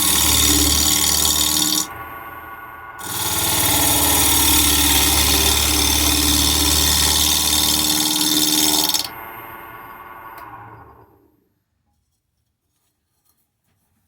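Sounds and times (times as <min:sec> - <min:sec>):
gouge cutting wood hiss: 0:00.0 - 0:01.9, 0:03.0 - 0:09.1
wood lathe humming: 0:00.0 - 0:11.3.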